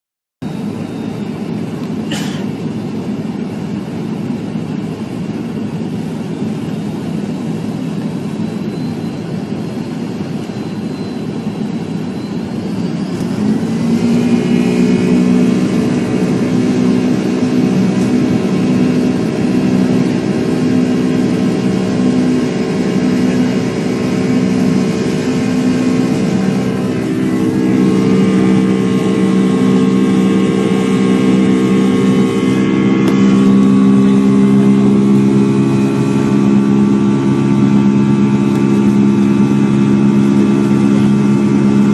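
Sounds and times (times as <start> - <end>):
drag racing engines: 12.8 - 41.9.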